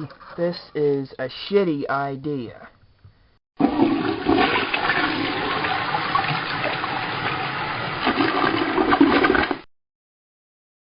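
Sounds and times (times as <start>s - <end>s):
toilet flushing: 3.6s - 9.7s.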